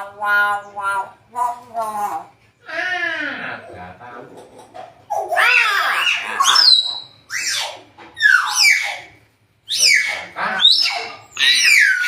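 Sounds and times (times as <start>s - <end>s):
myna whistles and squawks: 5.5s - 12.0s.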